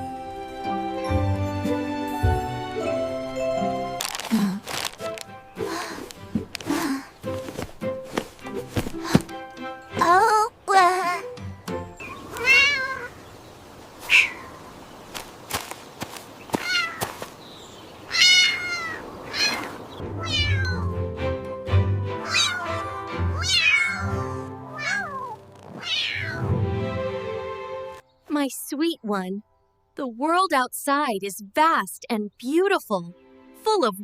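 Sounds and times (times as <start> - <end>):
background music with low notes: 0.0 - 12.4, 20.0 - 30.4, 32.9 - 34.0
cats meowing: 12.1 - 13.1, 14.0 - 14.6, 16.6 - 17.1, 18.1 - 20.9, 22.2 - 26.5.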